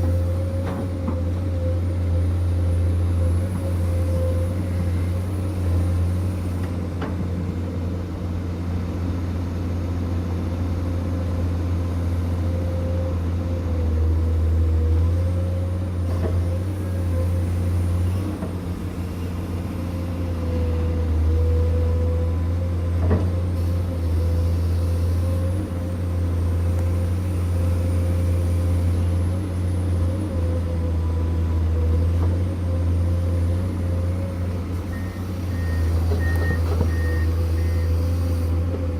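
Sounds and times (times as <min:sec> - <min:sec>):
diesel machinery engine hum: 0:00.0 - 0:38.9.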